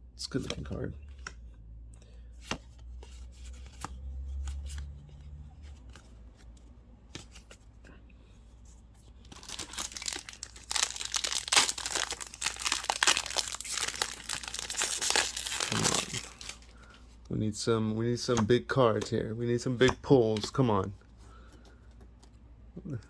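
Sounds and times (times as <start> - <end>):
foil wrapper crinkling and tearing: 9.4 - 16.8.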